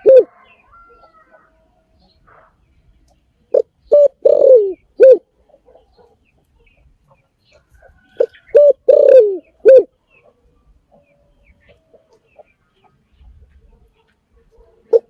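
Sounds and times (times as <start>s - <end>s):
dove cooing: 0.0s - 1.5s, 3.5s - 6.1s, 8.0s - 10.4s, 14.5s - 15.0s.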